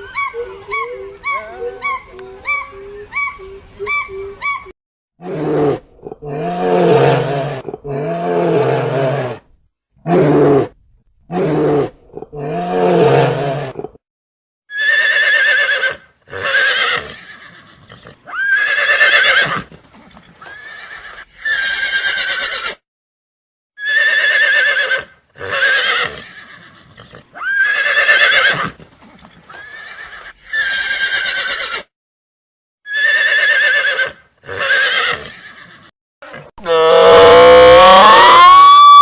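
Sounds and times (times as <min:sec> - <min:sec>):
quavering animal cries: 0:00.0 - 0:04.7, 0:18.3 - 0:19.6, 0:23.8 - 0:28.7, 0:29.5 - 0:31.8, 0:36.6 - 0:39.0.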